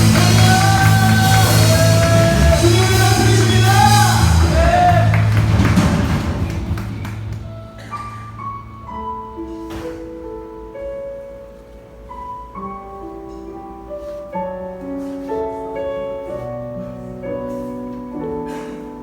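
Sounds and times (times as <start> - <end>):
keyboard playing sustained chords: 0.0 - 14.8.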